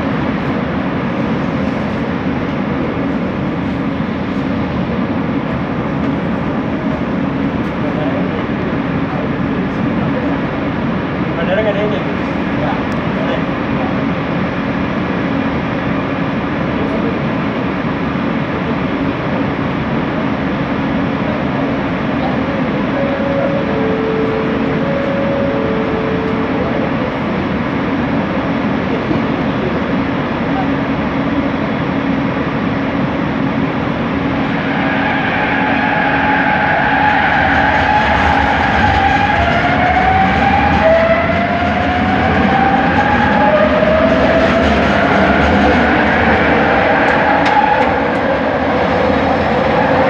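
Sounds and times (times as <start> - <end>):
train wheels on rail: 0.0 - 50.0
constant low hum: 20.4 - 34.4.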